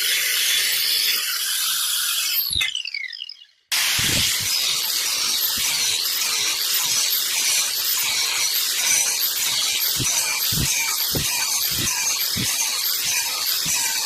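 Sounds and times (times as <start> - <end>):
tool hissing on metal: 0.0 - 2.5, 3.7 - 14.0.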